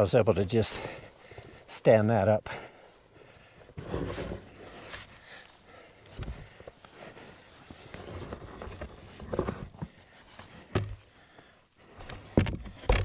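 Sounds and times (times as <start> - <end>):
panels knocking and thumping: 10.7 - 11.0, 12.0 - 13.0.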